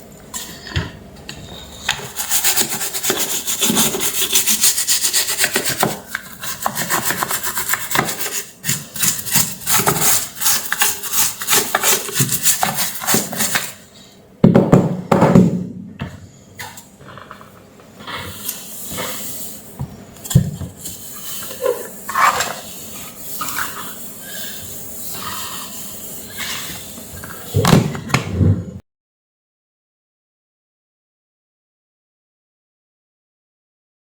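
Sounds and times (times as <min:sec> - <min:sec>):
rapid rubbing strokes: 0:02.0 - 0:13.8, 0:20.8 - 0:27.6.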